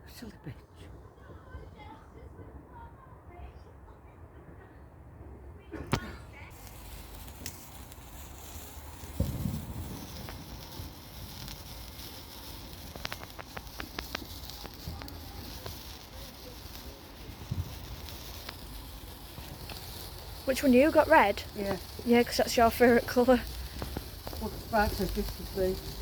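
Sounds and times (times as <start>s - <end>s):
sparkler fizzing and crackling: 5.9s - 26.0s.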